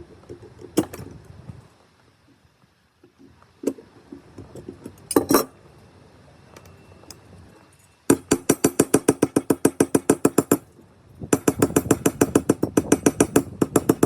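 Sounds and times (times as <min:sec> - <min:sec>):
metal tools clinking: 0:05.1 - 0:05.5.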